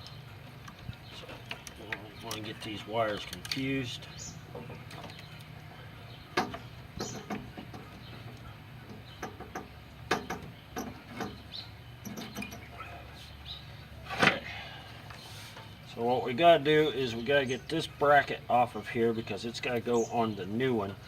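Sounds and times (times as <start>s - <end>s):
light clicks and taps: 0.0s - 3.7s.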